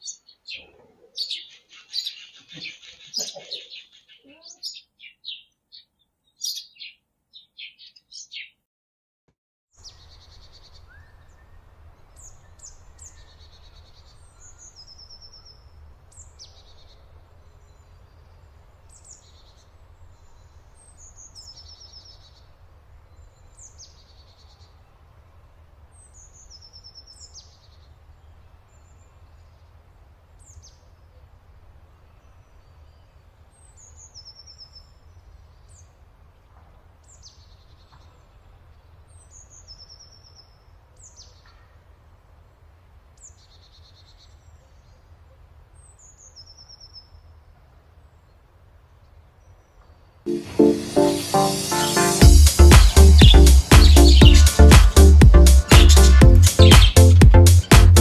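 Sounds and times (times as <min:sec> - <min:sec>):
small birds chirping: 0:00.0 - 0:08.6, 0:09.8 - 0:25.1, 0:48.2 - 0:58.0
steady low rumble: 0:52.2 - 0:58.0.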